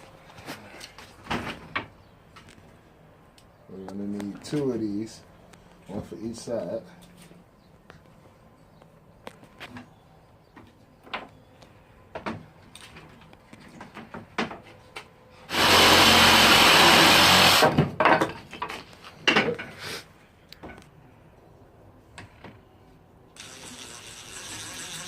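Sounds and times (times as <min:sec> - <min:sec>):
steady motor whine: 0:15.5 - 0:17.7
electric power tool on wood: 0:15.5 - 0:17.8, 0:23.4 - 0:25.0.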